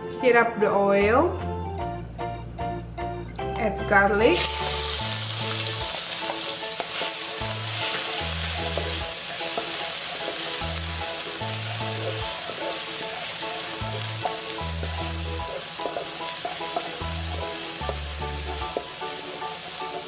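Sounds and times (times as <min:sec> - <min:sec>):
garlic sizzling in oil: 0:04.3 - 0:20.0.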